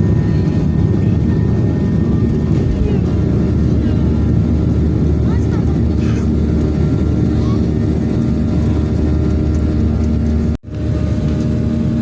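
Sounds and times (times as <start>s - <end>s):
jet engines droning: 0.0s - 12.0s.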